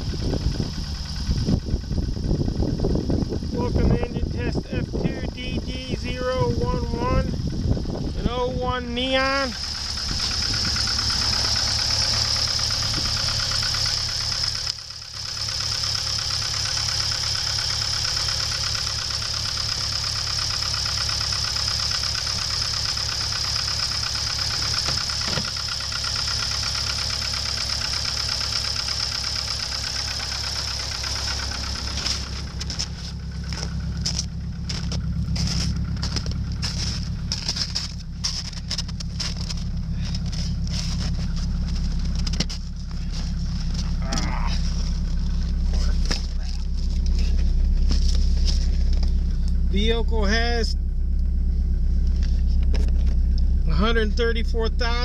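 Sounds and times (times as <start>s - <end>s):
car engine idling: 0.0s - 55.0s
footsteps crunching in snow: 31.1s - 44.0s, 44.6s - 49.3s.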